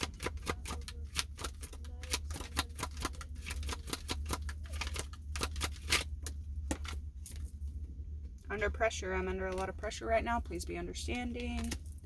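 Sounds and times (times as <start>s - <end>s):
cards being shuffled: 0.0s - 7.4s
steady low hum: 0.0s - 12.0s.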